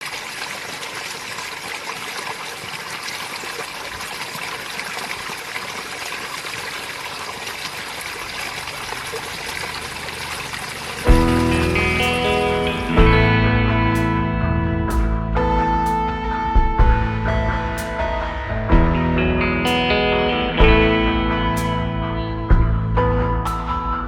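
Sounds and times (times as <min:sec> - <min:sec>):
fountain water splashing: 0:00.0 - 0:13.2.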